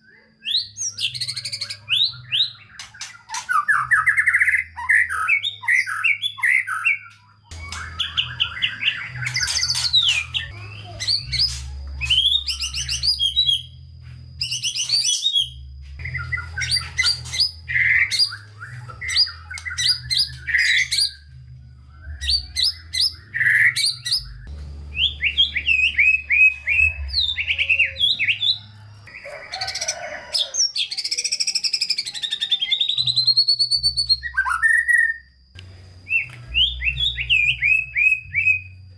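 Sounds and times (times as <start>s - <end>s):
songbird singing trills and whistles: 0.0s - 35.4s, 36.0s - 38.9s
low hum: 7.5s - 29.0s, 35.6s - 38.9s.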